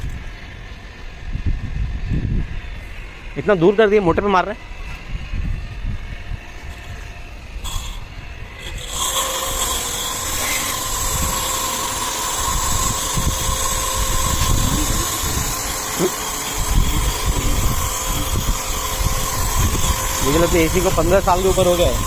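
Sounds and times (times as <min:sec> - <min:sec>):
pressure washer pump humming: 0:06.4 - 0:22.0.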